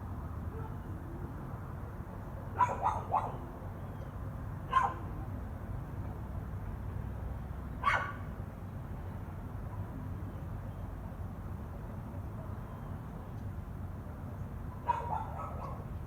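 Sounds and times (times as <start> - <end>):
dog barking: 2.6 - 3.4, 4.7 - 5.1, 7.8 - 8.2, 14.9 - 15.9.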